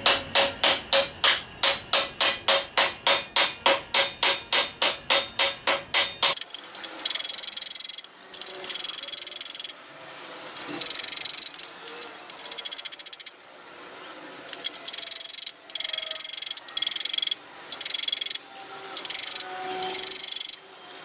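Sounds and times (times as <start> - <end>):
hammer striking steel pipe: 0.0 - 9.8.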